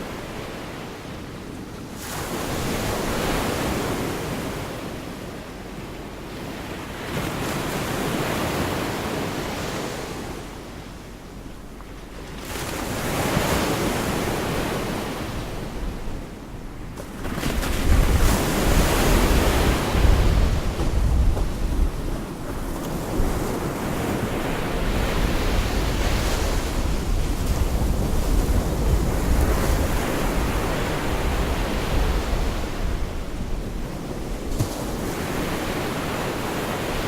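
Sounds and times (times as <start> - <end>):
wind buffeting microphone: 11.8 - 37.0
surf breaking on a beach: 12.2 - 37.0.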